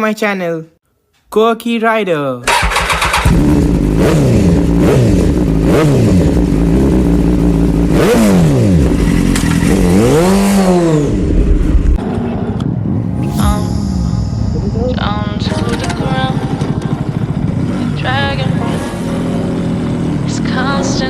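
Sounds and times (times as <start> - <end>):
motorcycle engine revving: 2.5 - 13.2, 15.8 - 20.8.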